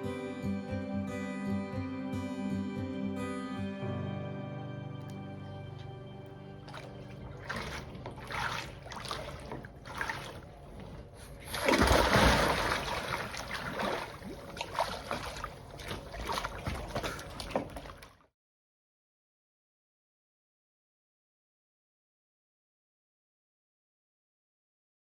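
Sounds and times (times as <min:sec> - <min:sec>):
kayak paddle splashing water: 0:06.4 - 0:18.2.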